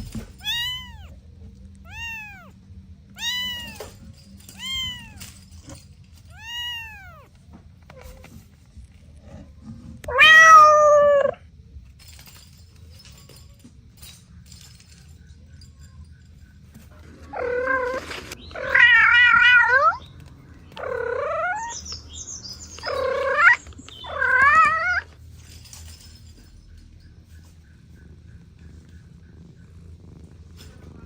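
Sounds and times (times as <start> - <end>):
cat meowing: 0.3 - 1.2, 1.8 - 5.4, 6.3 - 7.3, 10.0 - 11.4, 17.3 - 20.0, 20.8 - 21.8, 22.8 - 25.1.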